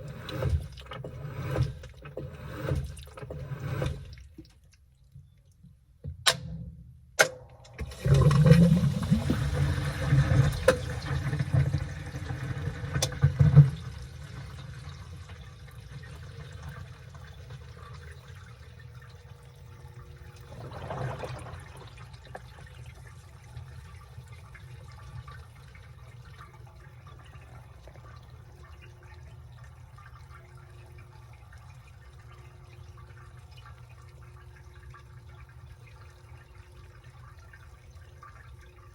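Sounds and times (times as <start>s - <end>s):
faint trickling water: 0.0s - 6.0s, 7.6s - 38.9s
water sloshing in drum: 0.0s - 38.9s
washing machine clicks: 6.0s - 8.5s.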